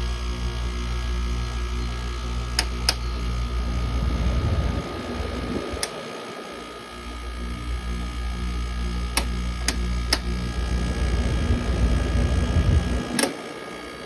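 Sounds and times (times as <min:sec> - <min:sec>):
air conditioner humming: 0:00.0 - 0:14.0
sharp clicks: 0:13.0 - 0:13.4.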